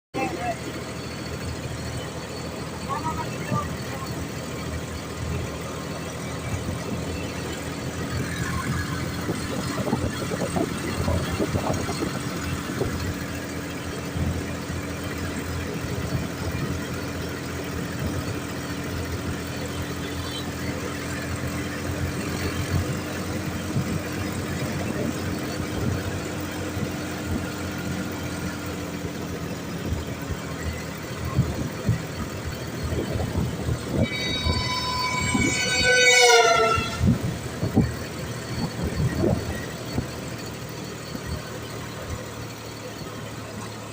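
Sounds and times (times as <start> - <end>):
tractor diesel engine running: 0.1 - 43.9
loud horn with falling pitch: 33.4 - 37.8.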